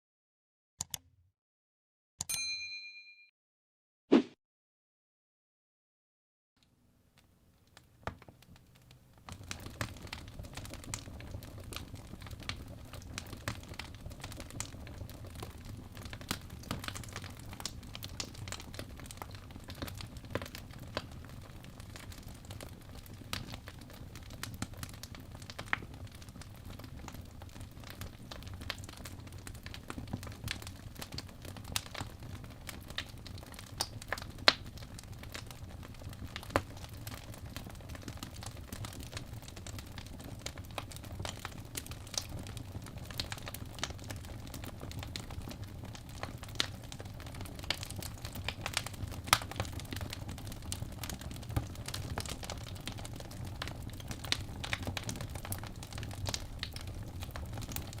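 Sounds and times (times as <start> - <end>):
logs crackling and popping: 7.2 - 58.0
flames rumbling: 9.2 - 58.0.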